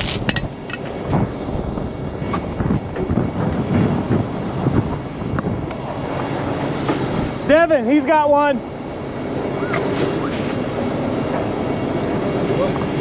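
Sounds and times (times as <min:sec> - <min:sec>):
metallic clanks: 0:00.0 - 0:00.9.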